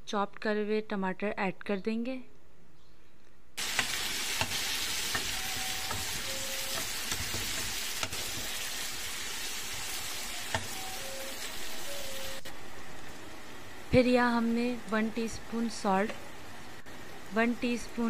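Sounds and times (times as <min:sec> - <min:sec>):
tomatoes sizzling in hot oil: 0:03.6 - 0:12.5
spatula tapping and scraping pan: 0:03.7 - 0:08.5.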